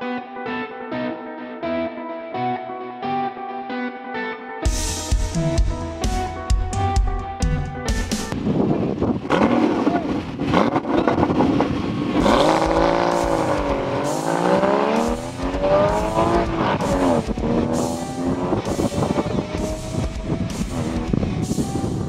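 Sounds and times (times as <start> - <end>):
music with a steady beat: 4.5 - 8.4, 12.2 - 22.0
car engines revving and accelerating: 8.4 - 22.0.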